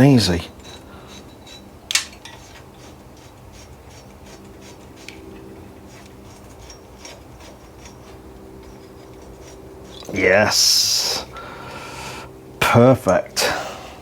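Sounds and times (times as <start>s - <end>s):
wires scraping in a tube: 0.2s - 10.2s.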